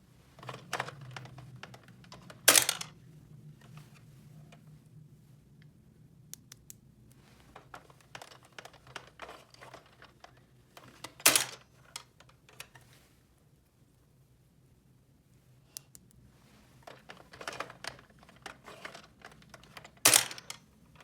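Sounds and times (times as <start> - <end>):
plastic toy pieces clicking: 2.4 - 2.9, 7.6 - 12.7, 16.9 - 20.6.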